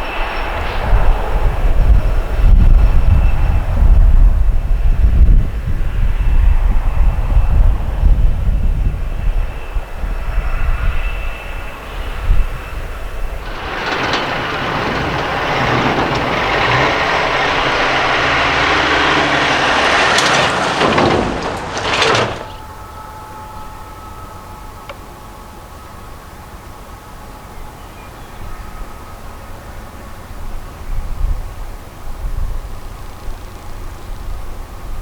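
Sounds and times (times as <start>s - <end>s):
big truck passing: 12.0s - 22.8s.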